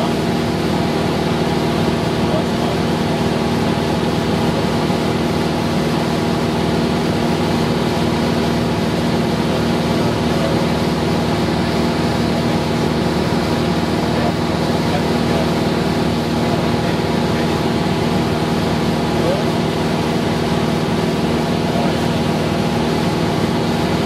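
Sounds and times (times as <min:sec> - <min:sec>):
propeller plane engine drone: 0:00.0 - 0:24.0.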